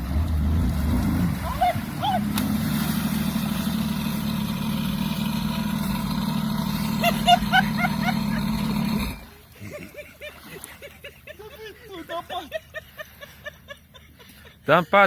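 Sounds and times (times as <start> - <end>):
jet ski engine droning: 0.0 - 9.6.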